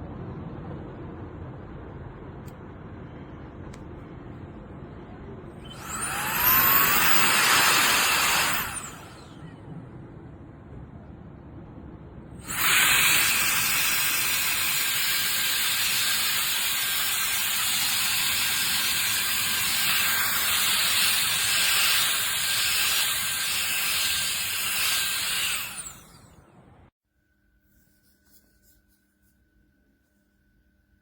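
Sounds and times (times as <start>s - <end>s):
electric air duster blowing hiss: 5.6s - 9.3s, 12.4s - 26.2s.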